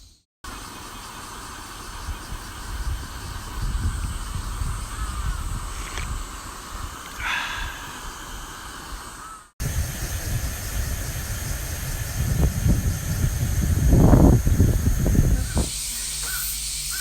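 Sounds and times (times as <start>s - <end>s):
wind buffeting microphone: 2.0s - 15.8s
crow cawing: 7.2s - 8.1s, 9.2s - 9.5s.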